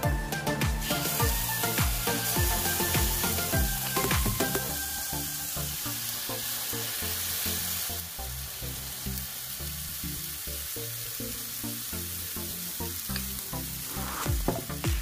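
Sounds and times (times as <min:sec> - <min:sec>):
background music with steady beat: 0:00.0 - 0:08.9, 0:09.6 - 0:15.0
batter sizzling in frying pan: 0:00.7 - 0:15.0.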